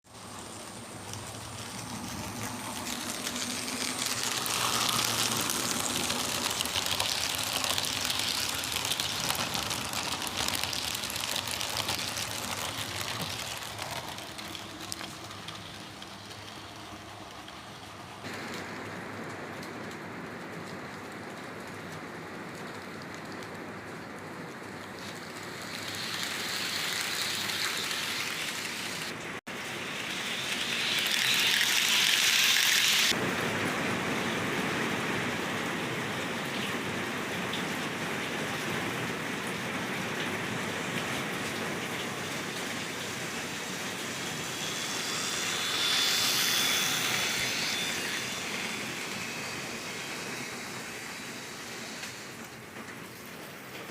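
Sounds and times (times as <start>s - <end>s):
model trains running: 0.0s - 53.9s
faint high whine: 0.1s - 19.2s, 25.0s - 33.2s, 42.0s - 52.7s.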